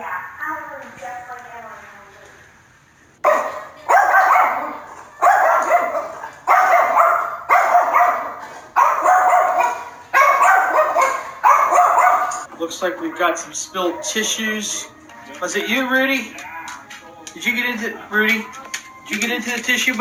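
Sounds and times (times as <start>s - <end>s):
dog barking: 3.2s - 12.5s.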